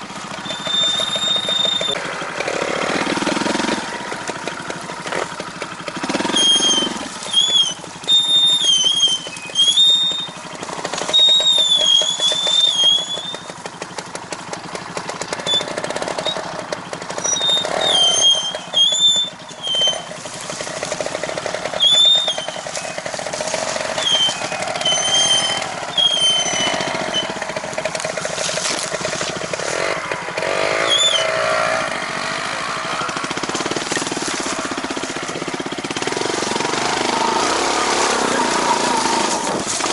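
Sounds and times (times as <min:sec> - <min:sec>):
small engine running: 0:00.0 - 0:39.9
high-pitched wavering squeals: 0:00.3 - 0:02.0, 0:06.2 - 0:13.5, 0:17.2 - 0:27.7, 0:30.6 - 0:31.8.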